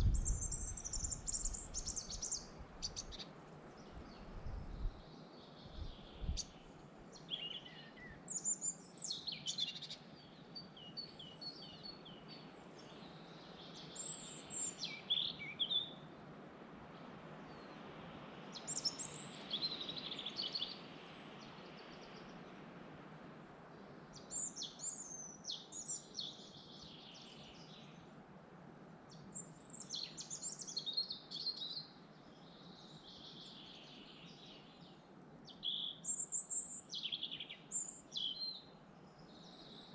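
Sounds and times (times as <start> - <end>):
songbirds singing and chirping: 0.0 - 16.1, 18.5 - 22.6, 23.7 - 28.2, 29.1 - 39.9
steady background hiss: 0.0 - 39.9.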